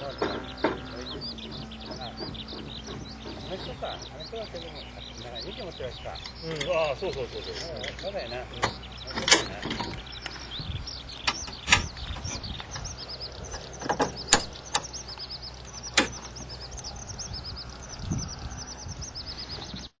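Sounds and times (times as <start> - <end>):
sharp knocks and clacks: 0.0 - 4.2, 15.9 - 16.5
small birds chirping: 0.0 - 20.0.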